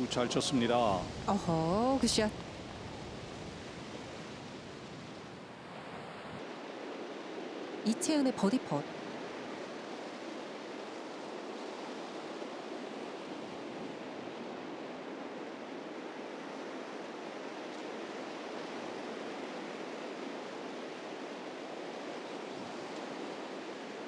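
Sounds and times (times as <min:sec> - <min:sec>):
strong wind on microphone: 0:00.0 - 0:07.9.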